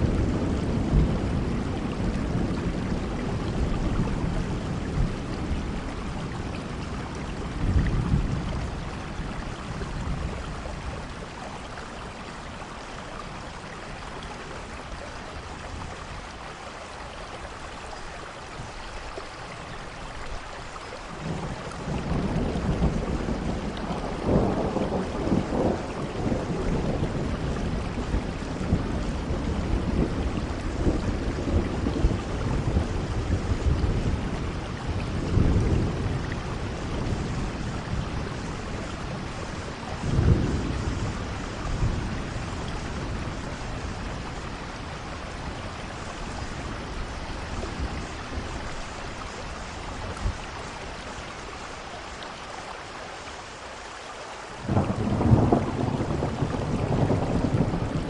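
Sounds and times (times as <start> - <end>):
thunder rumbling: 0.0 - 11.9, 21.2 - 51.2, 54.6 - 58.0
steady rainfall: 0.0 - 58.0.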